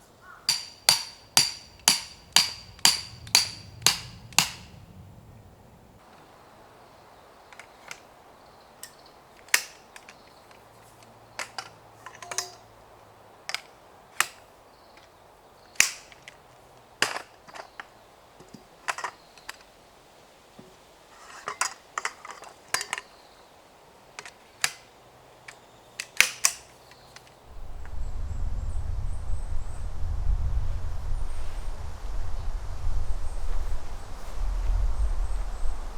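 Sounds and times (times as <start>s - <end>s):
sharp clicks and knocks: 0.5s - 4.8s, 11.4s - 12.6s, 24.2s - 24.9s.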